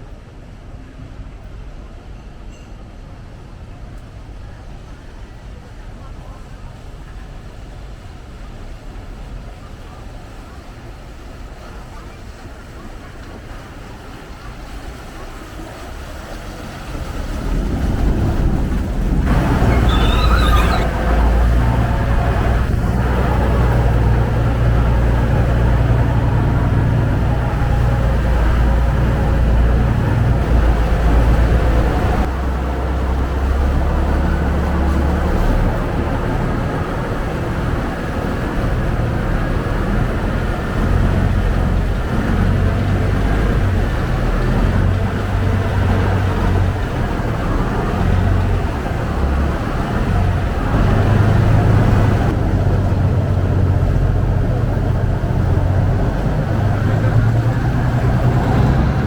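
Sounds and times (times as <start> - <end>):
boat engine rumbling: 3.4 - 59.0
water noise: 3.8 - 59.0
wind noise: 14.4 - 59.0
rushing with high wavering tones: 17.5 - 25.9.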